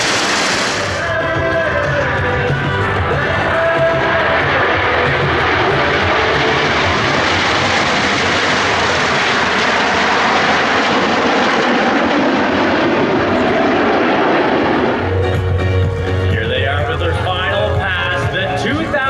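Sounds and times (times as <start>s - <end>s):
jet aircraft flying by: 0.0s - 19.0s.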